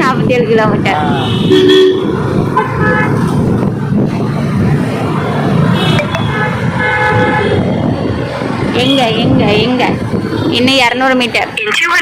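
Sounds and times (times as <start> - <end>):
road traffic noise: 0.0 - 12.0
vehicle horns honking: 1.1 - 3.2, 5.7 - 7.6.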